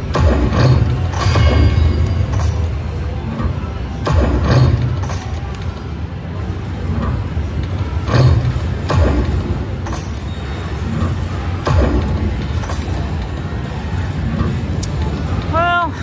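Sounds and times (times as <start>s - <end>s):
slot machine spin effects: 0.2s - 3.0s
slot machine game music: 0.2s - 3.1s.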